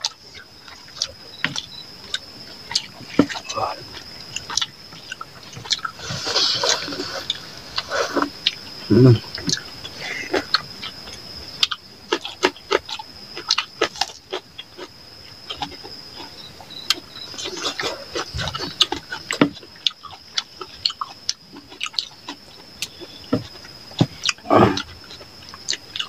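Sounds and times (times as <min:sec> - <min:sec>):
wet chewing: 0:00.0 - 0:26.0.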